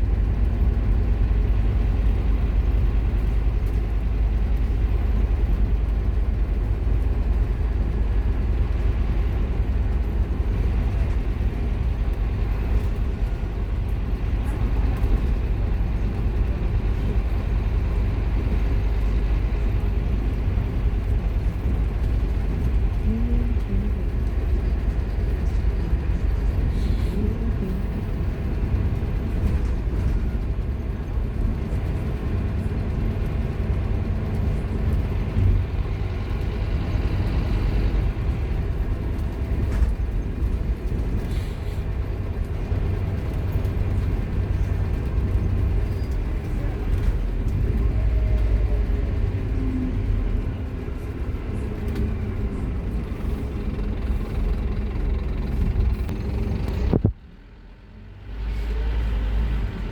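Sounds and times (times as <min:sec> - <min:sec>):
bus diesel engine droning: 0:00.0 - 0:59.9
road and body rumble: 0:00.0 - 0:59.9.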